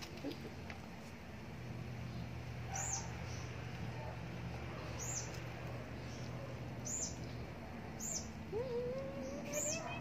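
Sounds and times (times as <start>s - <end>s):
low background hum: 0.0s - 10.0s
bird high chirp: 2.7s - 3.5s, 4.9s - 5.4s, 6.0s - 10.0s.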